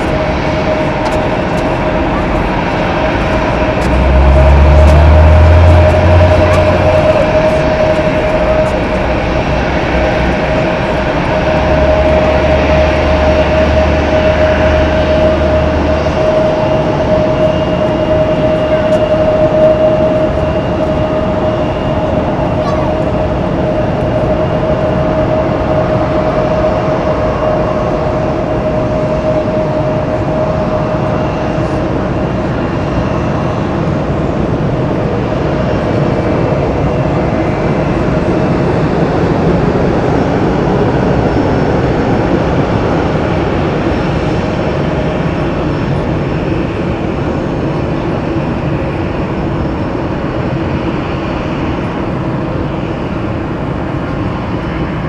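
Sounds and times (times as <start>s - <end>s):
jet engine whine: 0.0s - 55.0s
jet engines rumbling: 0.0s - 55.0s.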